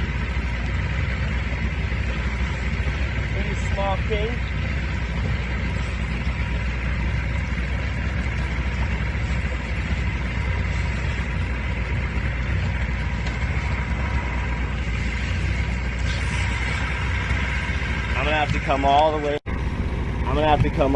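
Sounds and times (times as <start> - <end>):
boat engine rumbling: 0.0 - 20.9
faint steady whine: 0.0 - 20.9.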